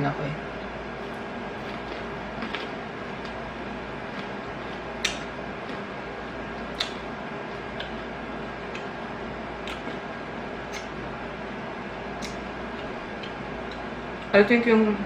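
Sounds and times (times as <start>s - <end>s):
room hum: 0.0s - 15.0s
chewing crispy food: 0.6s - 11.1s.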